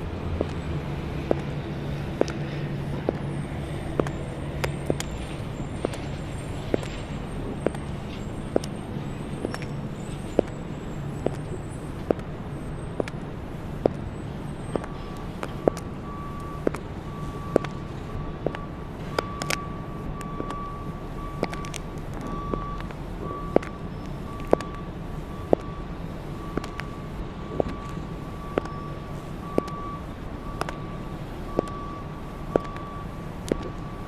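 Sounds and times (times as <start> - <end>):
city traffic rumble: 0.0 - 34.0
high heels clicking on pavement: 0.1 - 34.0
broken beeping tone: 14.6 - 34.0.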